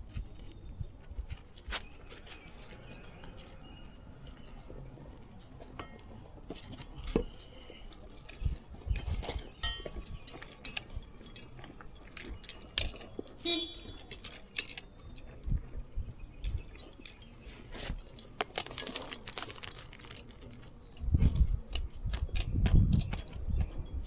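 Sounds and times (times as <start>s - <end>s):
roof shingles clicking and scraping: 17.8s - 20.8s.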